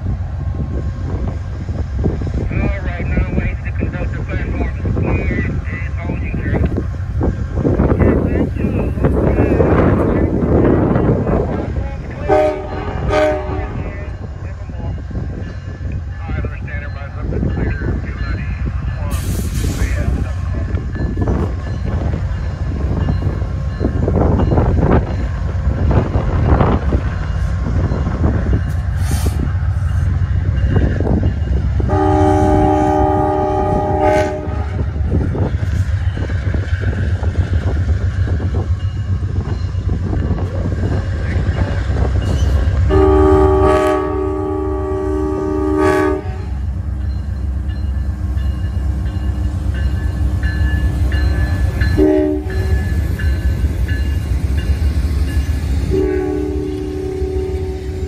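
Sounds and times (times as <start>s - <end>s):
locomotives rumbling past: 0.0s - 58.0s
train air horn blasts: 12.3s - 13.8s, 31.8s - 34.8s, 42.9s - 46.6s, 51.9s - 52.8s, 55.9s - 58.0s.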